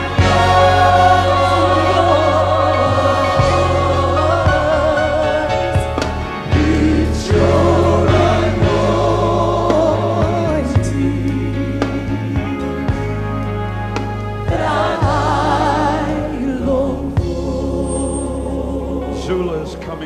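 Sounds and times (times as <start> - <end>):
accompanying band: 0.0 - 20.0
gospel choir singing: 0.0 - 20.0.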